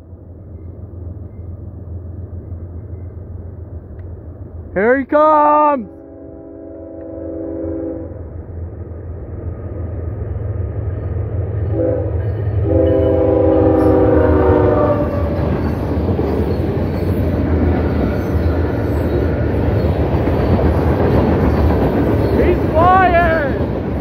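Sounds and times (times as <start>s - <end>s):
wheels on rail: 0.0s - 4.8s, 8.2s - 24.0s
train rumble: 0.0s - 24.0s
locomotive horn blasts: 5.8s - 8.2s, 11.7s - 15.4s.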